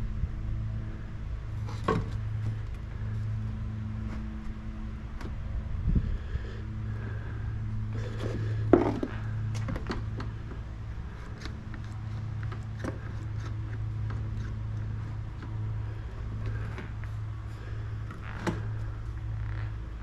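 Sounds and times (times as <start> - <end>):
steady low hum: 0.0 - 20.0
wooden pieces knocking: 8.7 - 10.3.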